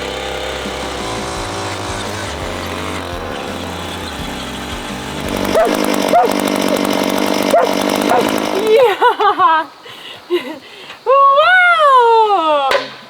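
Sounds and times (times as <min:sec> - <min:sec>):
small gasoline engine revving: 0:00.0 - 0:09.1.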